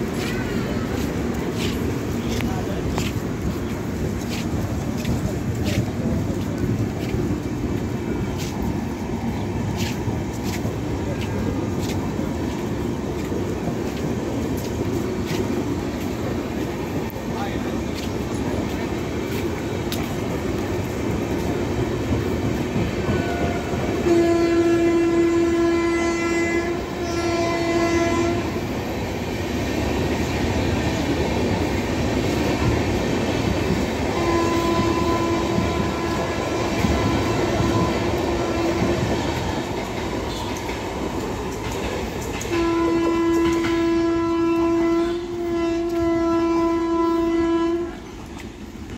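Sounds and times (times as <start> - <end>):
train passing with clatter: 0.0 - 48.9
train horn blasts: 23.0 - 28.7, 34.1 - 39.2, 40.3 - 40.6, 42.5 - 48.1.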